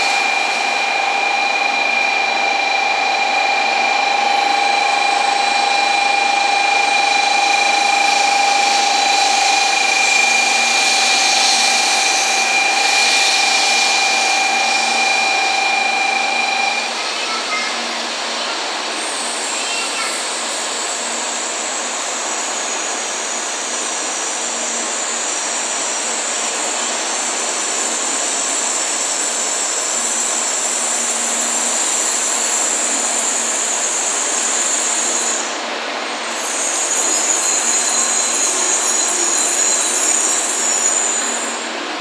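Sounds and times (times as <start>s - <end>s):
train rolling hiss: 0.0s - 42.0s
brake squeal: 36.4s - 41.6s.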